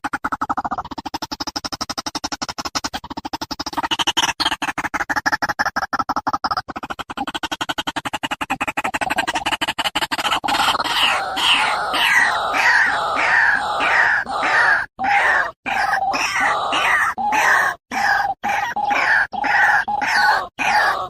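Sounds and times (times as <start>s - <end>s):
rapid stuttering pulse: 0.0s - 21.0s
harsh bird calls: 10.2s - 21.0s.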